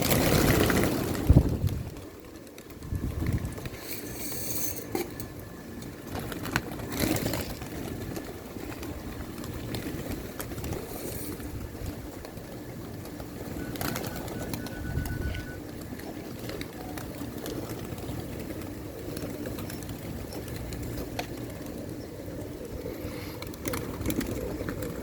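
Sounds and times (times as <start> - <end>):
pigeons cooing: 1.9 - 25.0.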